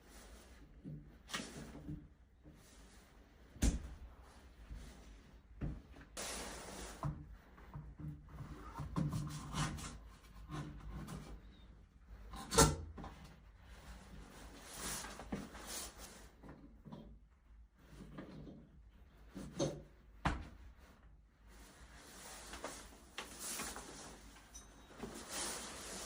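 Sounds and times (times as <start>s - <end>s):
hiss-like scrape: 6.2s - 7.0s.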